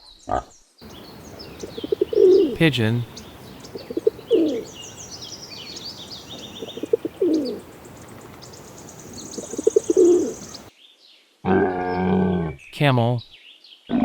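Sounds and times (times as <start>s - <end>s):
small birds chirping: 0.0s - 11.2s
pigeon cooing: 0.8s - 10.7s.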